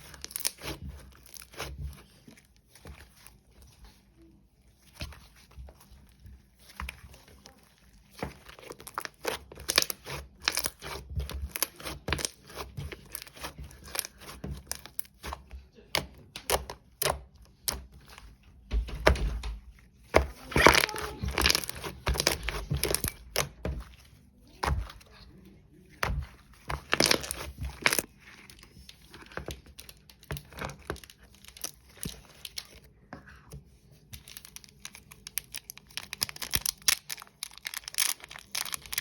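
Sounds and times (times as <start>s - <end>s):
packaging crinkling and tearing: 20.4s - 23.5s, 26.8s - 28.6s, 34.2s - 39.0s.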